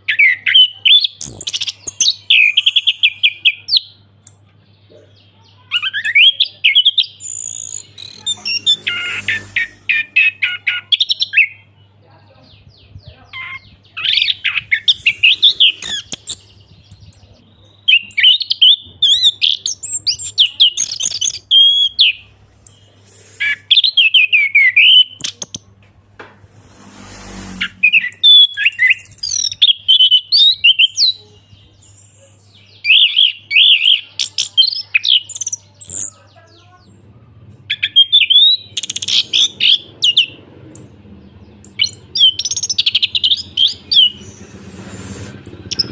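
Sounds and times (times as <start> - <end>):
brief rushing noise: 26.4 - 28.1.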